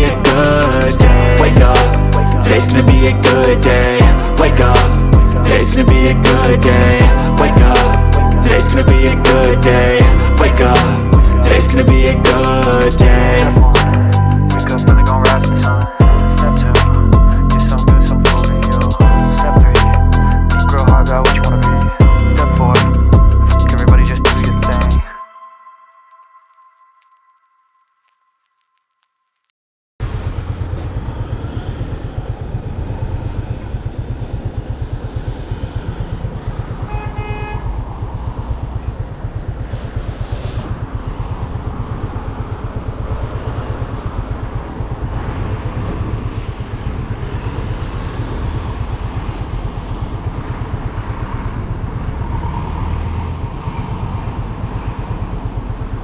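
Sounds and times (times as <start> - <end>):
motorcycle engine running: 0.0 - 21.2, 30.0 - 53.3
vehicle horn toot: 36.8 - 37.7.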